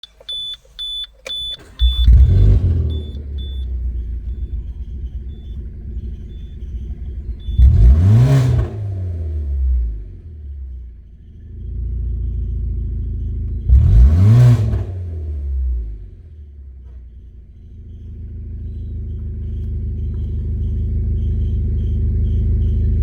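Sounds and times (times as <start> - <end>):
dashboard warning chime beeping: 0.0 - 10.1, 17.1 - 23.0
car engine starting and idling: 0.0 - 23.0
engine revving: 1.3 - 17.0.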